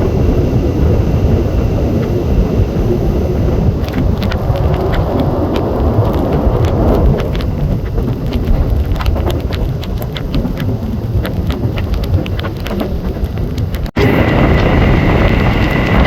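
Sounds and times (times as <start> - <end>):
train rumbling on track: 0.0 - 16.0
sharp clicks and rattles: 3.4 - 16.0.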